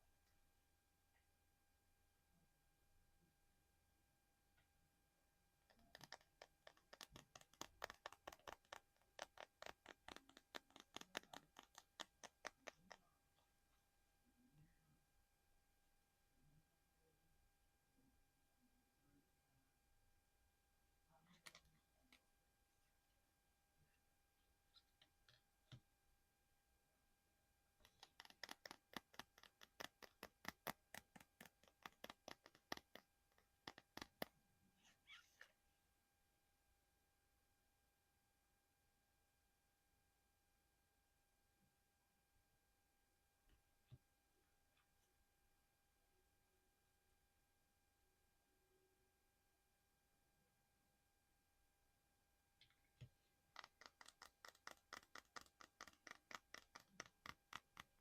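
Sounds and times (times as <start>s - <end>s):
quick tapping on hard object: 5.7s - 13.0s.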